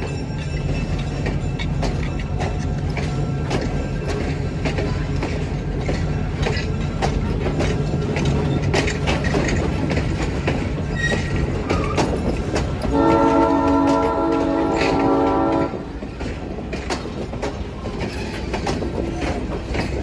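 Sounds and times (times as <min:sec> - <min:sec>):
train wheels clicking over rail joints: 0:00.0 - 0:20.0
multi-note train horn: 0:12.9 - 0:16.0.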